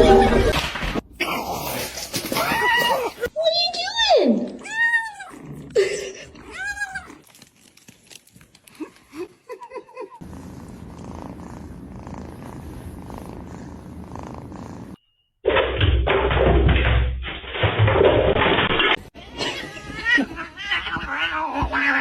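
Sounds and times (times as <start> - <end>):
cat purring: 10.2 - 15.0.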